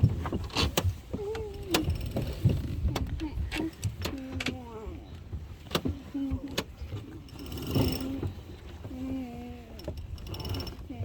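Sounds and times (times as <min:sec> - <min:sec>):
winch clicks: 0:09.8 - 0:10.8.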